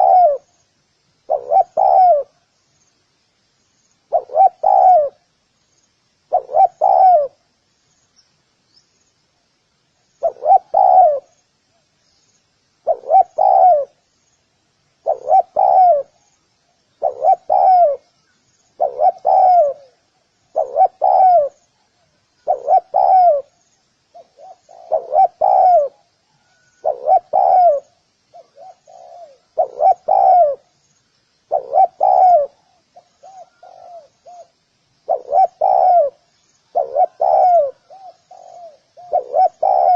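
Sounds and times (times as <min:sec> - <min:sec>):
dove cooing: 0:00.0 - 0:00.5, 0:01.3 - 0:02.4, 0:04.1 - 0:05.3, 0:06.3 - 0:07.4, 0:10.2 - 0:11.4, 0:12.8 - 0:14.0, 0:15.0 - 0:16.3, 0:17.0 - 0:18.1, 0:18.8 - 0:30.8, 0:31.5 - 0:39.9
faint high chirping: 0:00.0 - 0:39.9.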